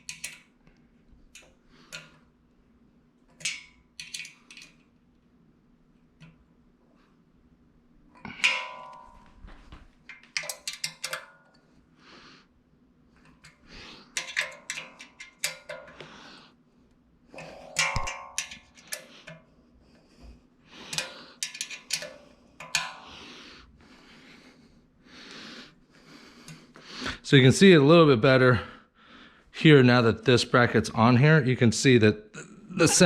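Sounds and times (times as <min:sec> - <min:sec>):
faint steady hum: 0:00.0 - 0:33.0
metal parts clanking and rattling: 0:03.3 - 0:04.8, 0:08.2 - 0:11.6, 0:14.1 - 0:16.0, 0:17.4 - 0:19.4, 0:20.9 - 0:23.1
ringing metal clangs: 0:08.2 - 0:09.8, 0:17.4 - 0:19.0.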